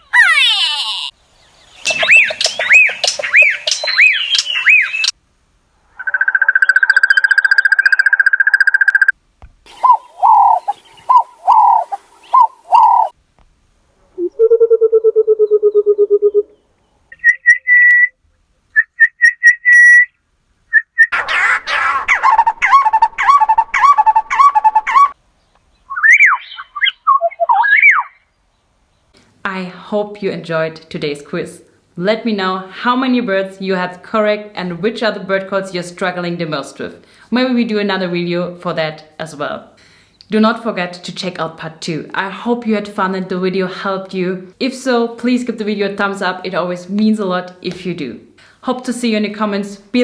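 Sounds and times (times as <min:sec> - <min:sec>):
bird calls: 0:00.1 - 0:05.1, 0:05.9 - 0:09.1, 0:09.7 - 0:13.1, 0:14.2 - 0:18.1, 0:20.8 - 0:28.6.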